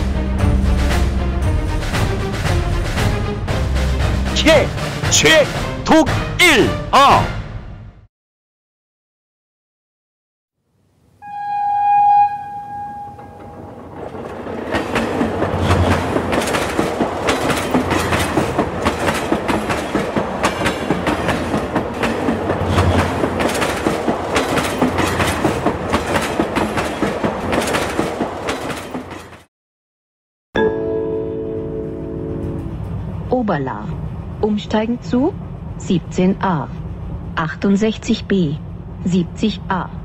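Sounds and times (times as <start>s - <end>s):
train horn: 11.2s - 13.8s
wheels clacking over rail joints: 13.2s - 29.5s.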